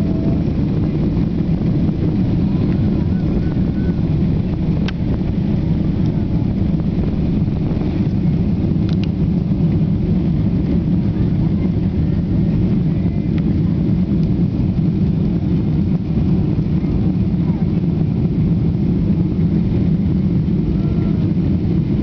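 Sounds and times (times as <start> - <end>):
jet engines low rumble: 0.0 - 22.0.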